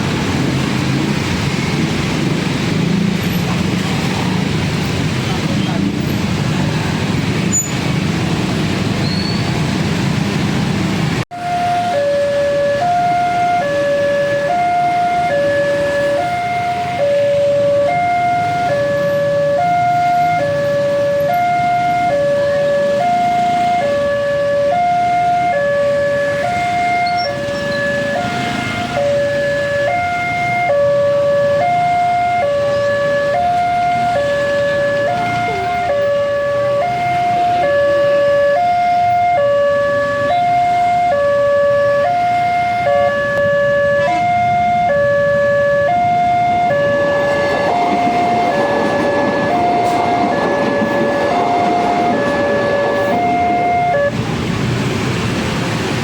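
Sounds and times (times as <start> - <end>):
train approaching: 0.0 - 56.0
two-tone level crossing alarm: 11.3 - 54.1.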